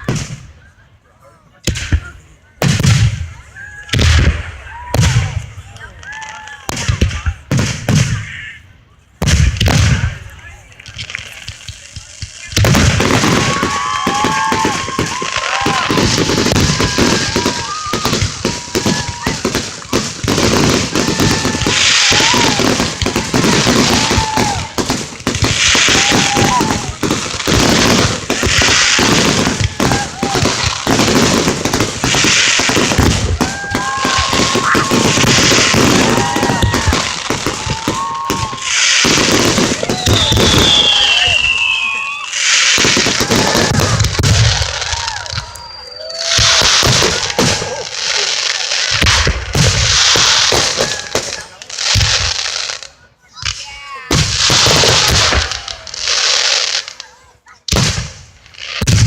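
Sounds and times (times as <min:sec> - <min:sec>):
fireworks bangs and crackles: 0:00.0 - 0:00.9, 0:01.5 - 0:59.0
fireworks whistling: 0:09.2 - 0:59.0
high firework whistle: 0:12.4 - 0:20.0, 0:32.0 - 0:48.2.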